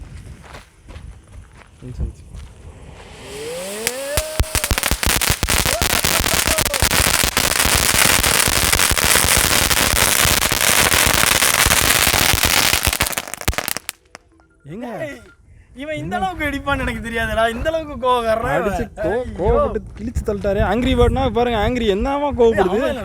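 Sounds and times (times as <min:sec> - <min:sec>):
firecracker hissing and crackling: 0:02.5 - 0:14.1
firecracker rising whistle: 0:02.6 - 0:14.1.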